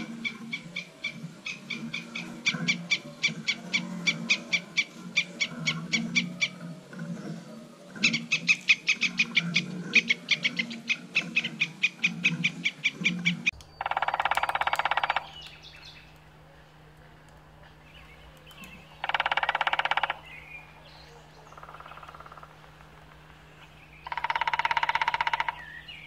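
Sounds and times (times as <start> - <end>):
low steady hum: 0.0 - 26.0
sparrows chirping: 8.0 - 16.4, 17.1 - 26.0.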